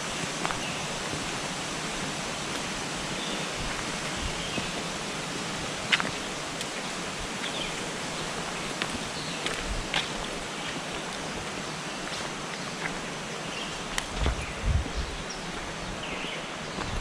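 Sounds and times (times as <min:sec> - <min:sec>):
steady hiss: 0:00.0 - 0:17.0
soft low thumps: 0:14.1 - 0:15.3.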